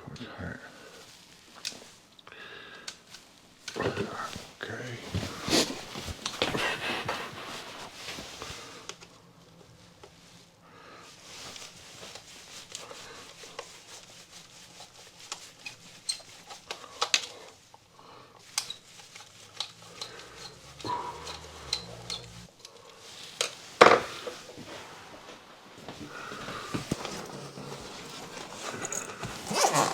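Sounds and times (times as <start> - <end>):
hand tools clicking and clinking: 15.3 - 17.8, 18.4 - 24.0, 26.4 - 29.9.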